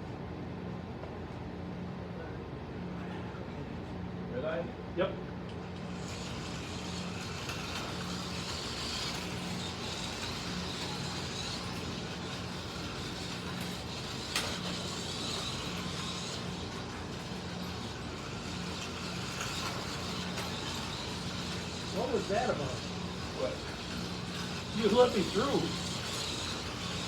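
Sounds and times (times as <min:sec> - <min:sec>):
slot car motors whirring: 0:05.5 - 0:27.0.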